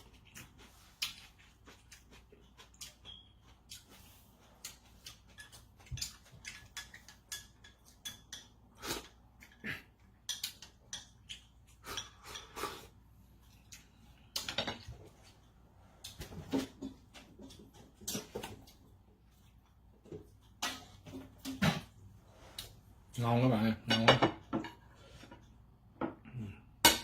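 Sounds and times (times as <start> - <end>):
person chewing: 0.0 - 14.5.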